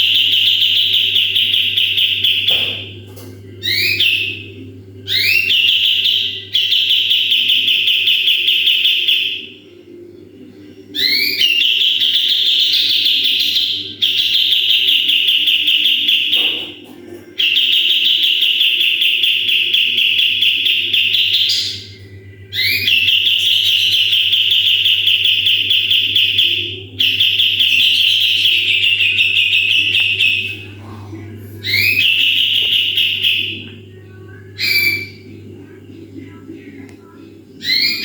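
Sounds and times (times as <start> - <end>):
songbird rattling trills: 22.6 - 30.6.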